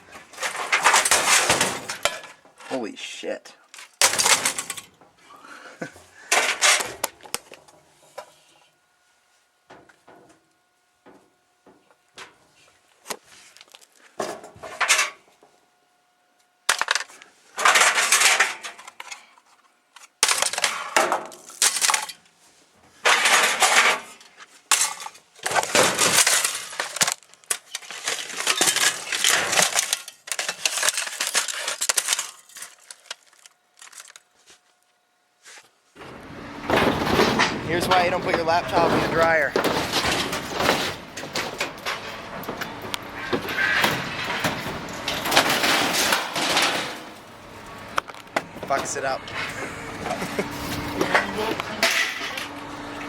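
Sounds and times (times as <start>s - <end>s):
broken plastic and glass rattling: 0.4s - 2.4s, 3.8s - 5.1s, 16.7s - 19.0s, 23.0s - 34.3s, 36.0s - 53.0s.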